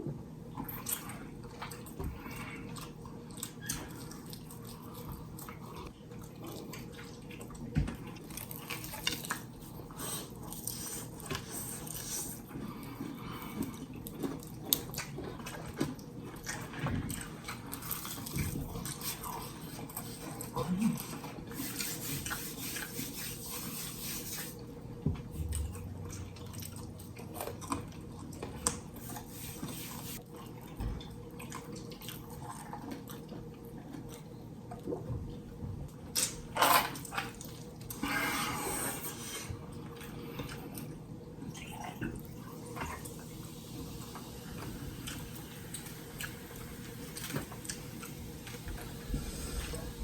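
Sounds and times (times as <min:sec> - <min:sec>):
wet chewing and smacking: 0:00.5 - 0:23.0, 0:24.6 - 0:29.3, 0:30.2 - 0:38.0.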